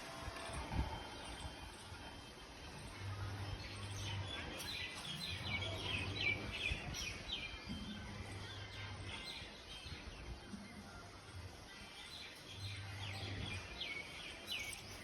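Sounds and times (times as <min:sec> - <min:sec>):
outdoor background noise: 0:00.0 - 0:15.0
small birds chirping: 0:02.7 - 0:15.0.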